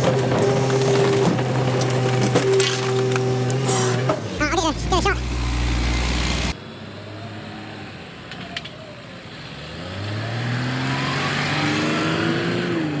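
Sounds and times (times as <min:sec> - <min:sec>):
truck engine accelerating: 0:03.1 - 0:08.5.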